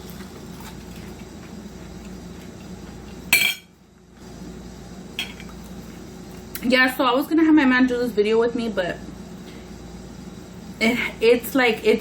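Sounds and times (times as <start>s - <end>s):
utensil and eating sounds: 0.0s - 7.5s
steady room hum: 0.0s - 12.0s
cutlery clinking against dish: 3.4s - 3.7s.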